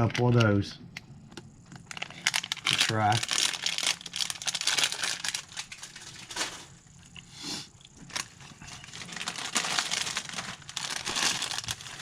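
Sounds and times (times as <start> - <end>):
plastic packaging crinkling: 1.6 - 7.0, 7.8 - 12.0.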